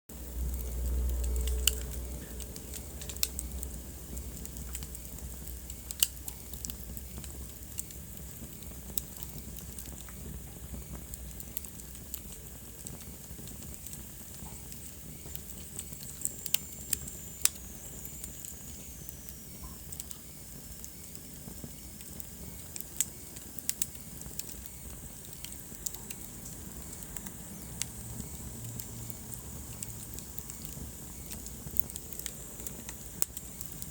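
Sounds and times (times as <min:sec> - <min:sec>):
low rumble: 0:00.1 - 0:05.8
wood fire crackling and popping: 0:00.1 - 0:33.9.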